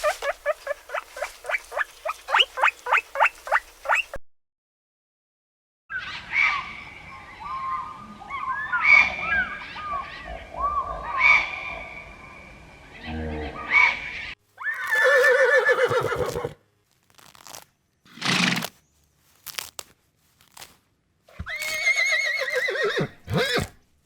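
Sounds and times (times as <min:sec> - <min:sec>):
horse whinnying: 0:14.6 - 0:16.6, 0:18.1 - 0:18.7, 0:21.3 - 0:23.8.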